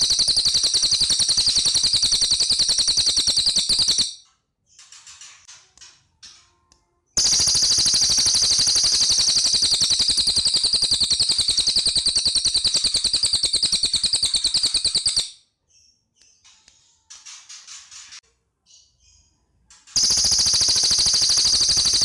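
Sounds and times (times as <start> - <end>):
bird rapid trill: 0.0 - 4.2, 7.2 - 15.4, 20.0 - 22.0.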